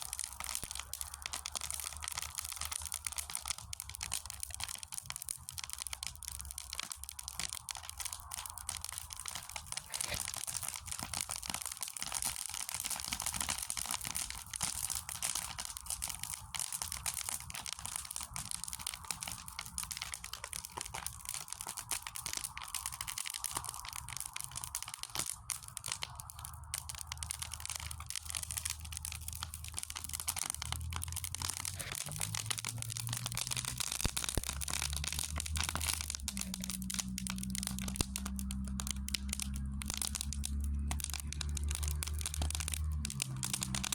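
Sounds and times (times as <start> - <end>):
wood fire crackling: 0.0 - 43.9
low rumble: 26.4 - 43.9.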